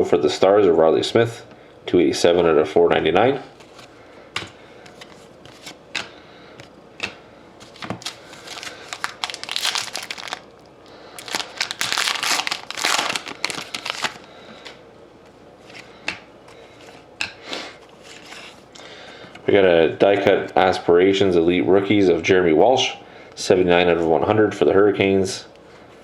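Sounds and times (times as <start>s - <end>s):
cards being handled: 3.6s - 10.5s, 11.2s - 14.3s
plastic wrapper crinkling and tearing: 7.6s - 14.3s.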